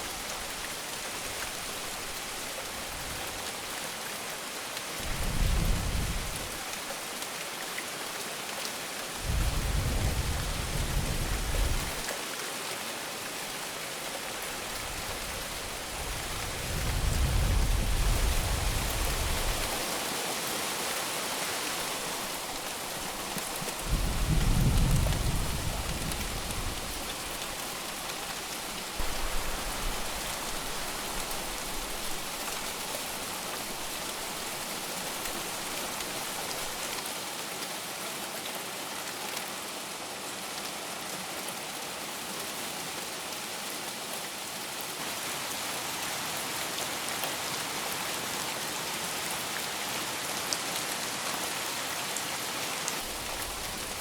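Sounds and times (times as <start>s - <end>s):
heavy rain pattering: 13.9s - 37.0s, 52.8s - 54.0s
distant thunder rumble: 23.6s - 27.1s.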